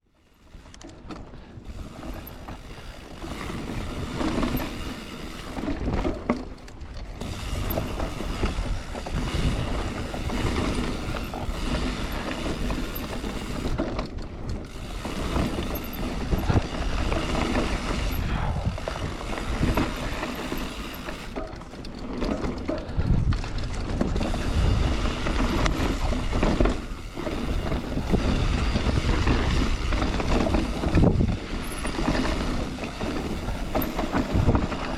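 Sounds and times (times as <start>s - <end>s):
bike creaking: 0.0s - 34.9s
bike rattling and knocking: 0.3s - 34.9s
tyres rolling over roots and stones: 0.4s - 34.9s
wind rushing on microphone: 7.0s - 14.0s, 14.6s - 20.8s, 22.8s - 34.9s.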